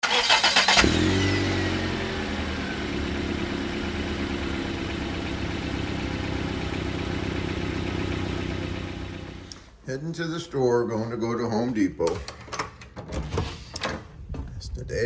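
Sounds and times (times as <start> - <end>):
car engine running: 0.6 - 9.5.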